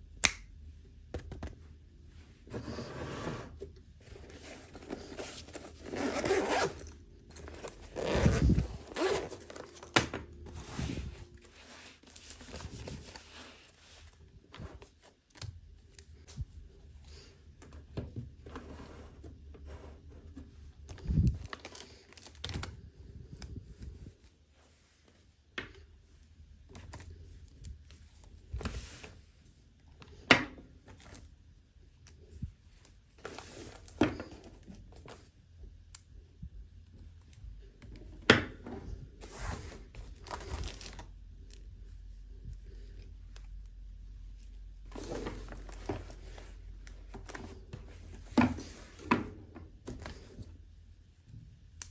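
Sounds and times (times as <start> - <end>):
packaging rustling and tearing: 21.0 - 22.8, 39.9 - 41.2.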